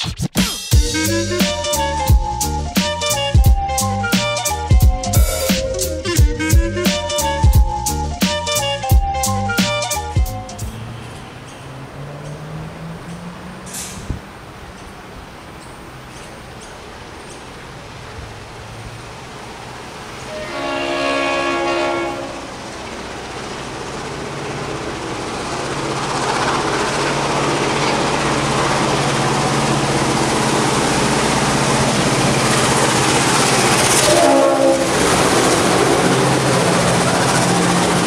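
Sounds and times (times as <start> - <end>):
locomotive engine rumble: 0.7 - 38.0
locomotive horn: 0.9 - 12.1, 20.2 - 22.6, 33.3 - 36.8.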